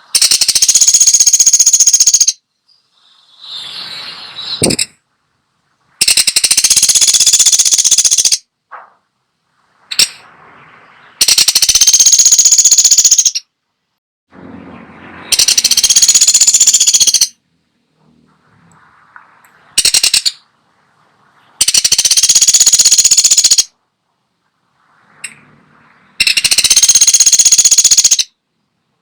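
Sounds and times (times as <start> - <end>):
woodpecker rattling calls: 0.0 - 2.4, 4.5 - 5.0, 6.0 - 8.5, 9.9 - 10.2, 11.2 - 13.5, 15.3 - 17.4, 19.8 - 20.5, 21.6 - 23.8, 26.2 - 28.4.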